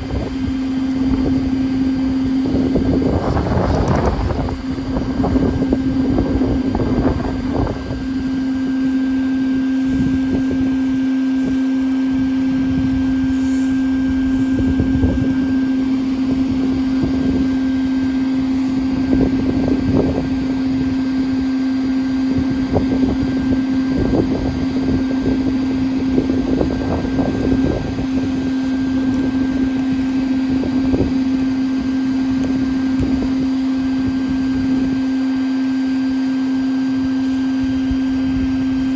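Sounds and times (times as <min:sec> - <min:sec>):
vacuum motor humming: 0:00.0 - 0:38.9
knocks and rattles in hose: 0:01.0 - 0:08.1.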